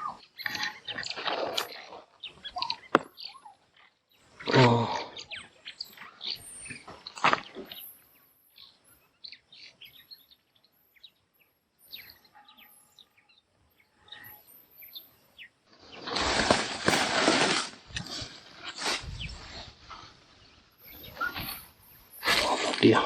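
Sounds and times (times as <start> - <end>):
birds chirping: 0.0 - 17.0, 18.0 - 23.0.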